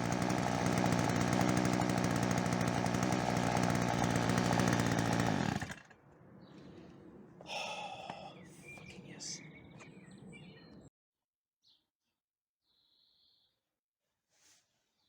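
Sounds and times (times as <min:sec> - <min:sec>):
strimmer engine running: 0:00.0 - 0:08.3.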